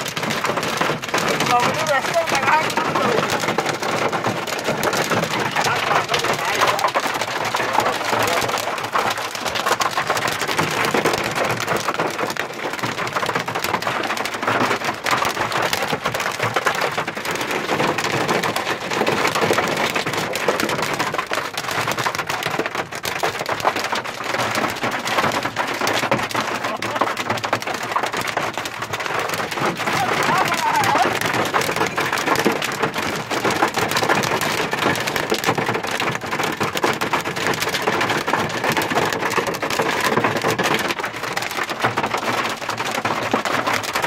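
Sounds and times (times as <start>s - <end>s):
hailstones striking: 0.0s - 44.0s.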